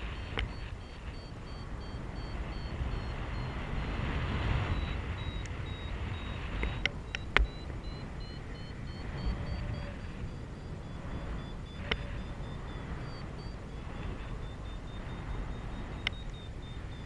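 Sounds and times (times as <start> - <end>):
variometer beeping: 0.0 - 17.0
wind rushing over microphone: 0.0 - 17.0
sharp clicks: 4.7 - 7.8.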